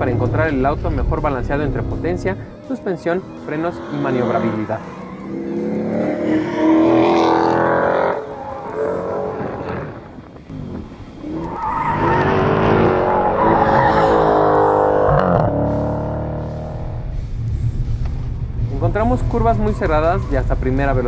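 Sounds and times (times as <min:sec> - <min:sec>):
car engine revving hard: 0:03.8 - 0:10.1, 0:11.9 - 0:17.0.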